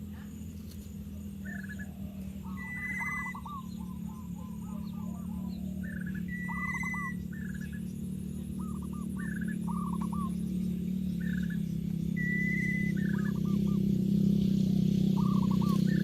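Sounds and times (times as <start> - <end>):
steady low hum: 0.0 - 16.0
birds calling short falling notes: 15.2 - 16.0.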